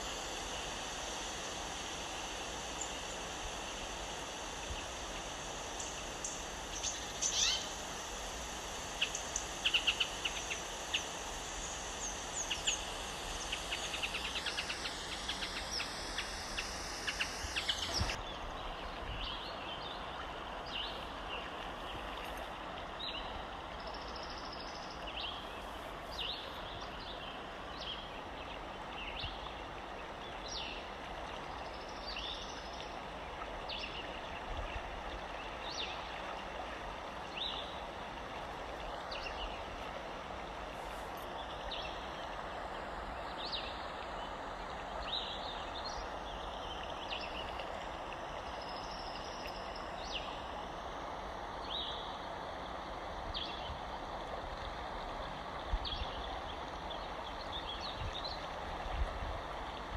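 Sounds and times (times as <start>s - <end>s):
steady hiss: 0.0s - 59.9s
birds chirping: 8.8s - 18.3s.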